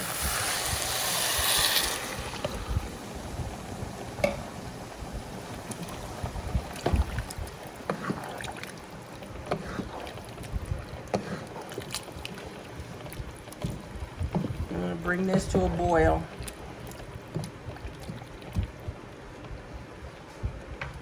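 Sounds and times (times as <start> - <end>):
water pouring into a pot: 0.0 - 9.3.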